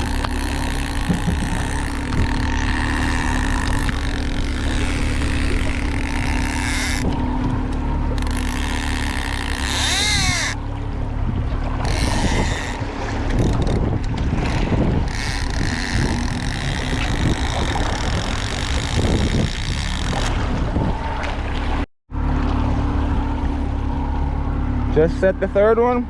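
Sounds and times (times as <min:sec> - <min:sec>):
wind buffeting microphone: 0:00.0 - 0:21.8
boat engine running: 0:00.0 - 0:26.0.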